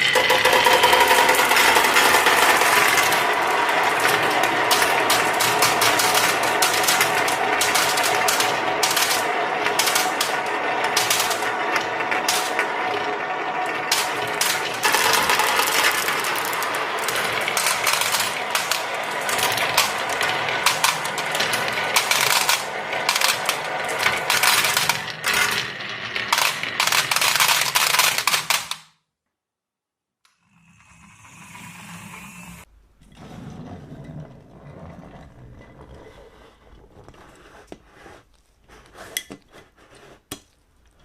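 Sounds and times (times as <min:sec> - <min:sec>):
marbles rolling and clattering: 0:00.0 - 0:28.8.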